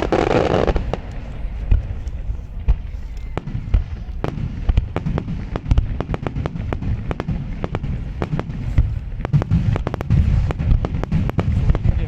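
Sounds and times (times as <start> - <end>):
fireworks cracking: 0.0 - 12.0
low rumble of booms: 0.0 - 12.0.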